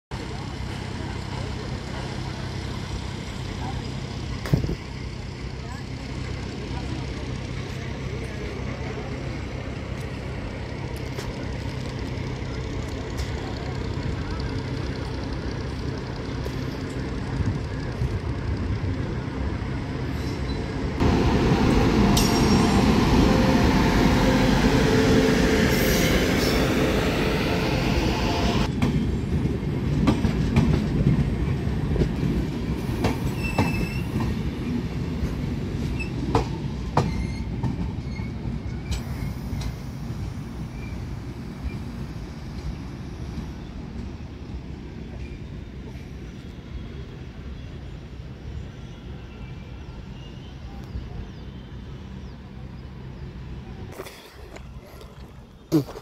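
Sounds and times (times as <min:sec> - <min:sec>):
train wheels rushing on rail: 0:00.2 - 0:53.9
high wheel squeals: 0:33.2 - 0:34.2, 0:37.0 - 0:39.5.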